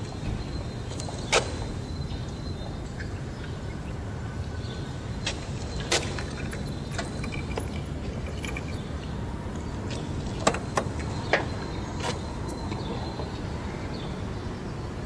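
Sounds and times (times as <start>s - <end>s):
sharp clicks and knocks: 9.6s - 13.3s.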